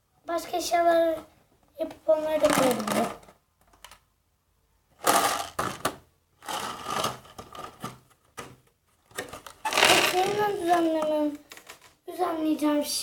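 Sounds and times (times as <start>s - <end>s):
rustling of craft items: 1.0s - 4.1s, 4.9s - 12.1s.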